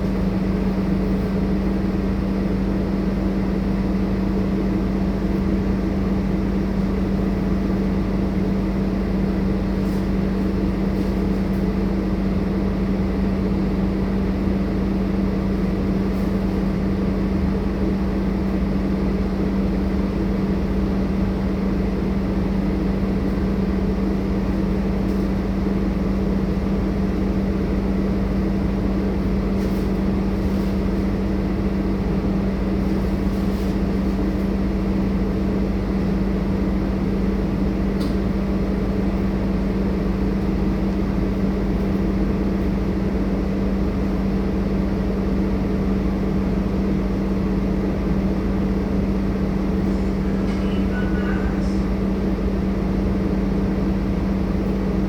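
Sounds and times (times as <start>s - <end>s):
diesel bus engine droning: 49.2s - 52.5s.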